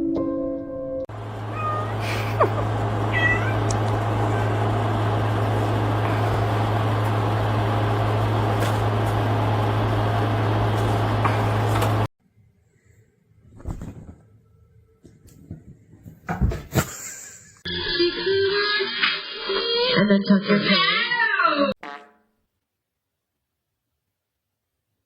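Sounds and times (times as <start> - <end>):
motor humming with hiss: 1.2 - 12.1
cat meowing: 1.5 - 2.0, 3.1 - 3.7.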